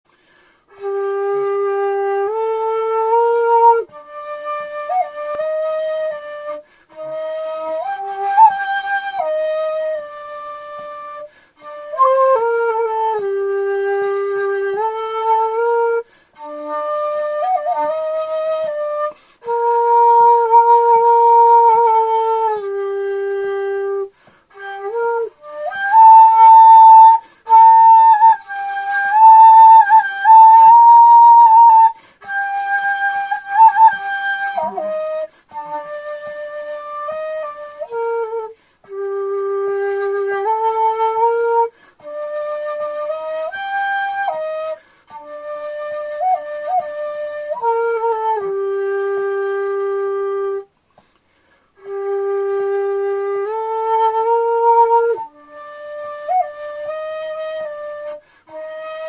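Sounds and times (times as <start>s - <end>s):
bamboo flute slow melody: 0.1s - 59.0s.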